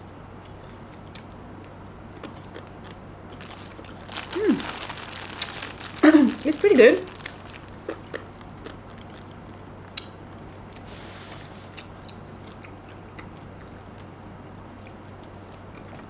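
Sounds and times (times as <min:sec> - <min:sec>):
person chewing food: 0:02.2 - 0:10.1.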